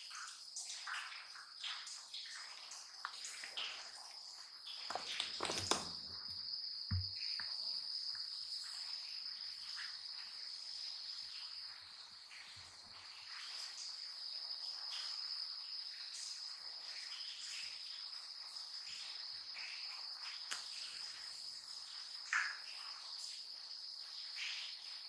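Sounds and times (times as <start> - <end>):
dull thump: 6.9 - 7.2.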